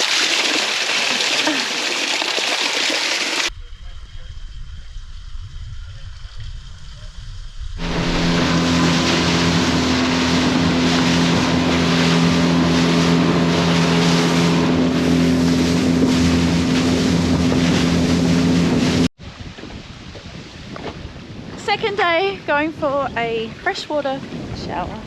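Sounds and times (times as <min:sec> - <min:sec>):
wind and water rushing: 0:07.6 - 0:25.0
boat motor droning: 0:07.8 - 0:19.1.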